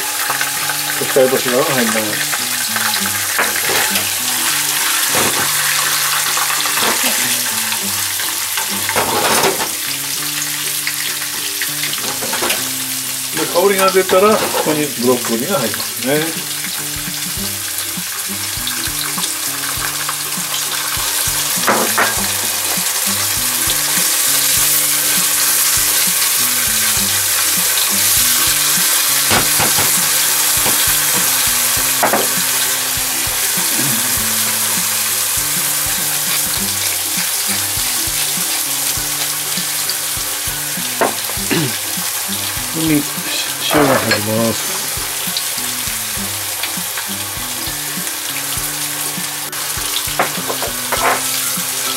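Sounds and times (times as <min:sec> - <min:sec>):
vegetables sizzling in oil: 0:00.0 - 0:51.9.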